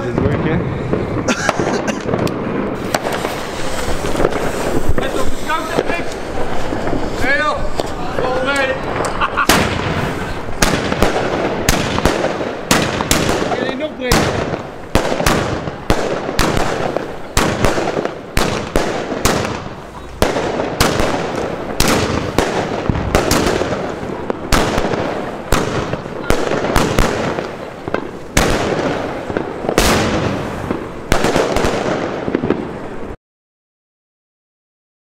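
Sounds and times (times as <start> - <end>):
firework bangs: 0.0 - 33.2
crackle of bursting stars: 2.1 - 13.6.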